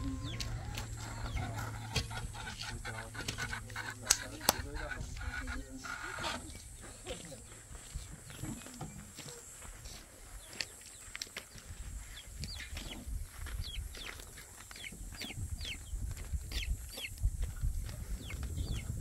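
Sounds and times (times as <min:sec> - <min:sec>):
bird chirps sliding down in pitch: 0:00.0 - 0:01.6
low rumble: 0:00.0 - 0:05.3.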